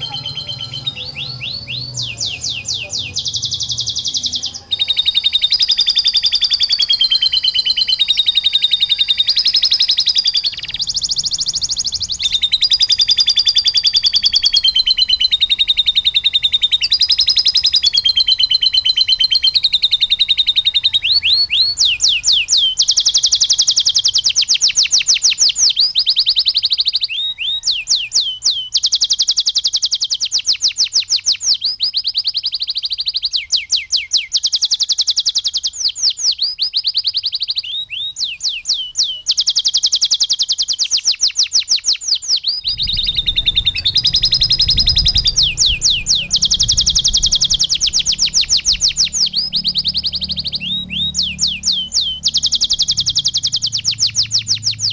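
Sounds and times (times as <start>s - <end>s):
canary singing trills: 0.0s - 54.9s
low rumble: 42.6s - 53.4s.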